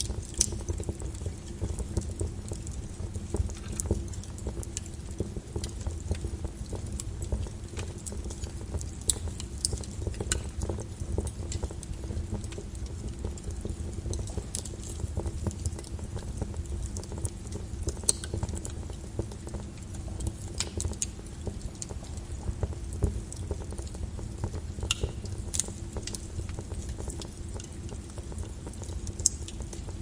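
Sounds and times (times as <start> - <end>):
lava crackling and popping: 0.0 - 30.0.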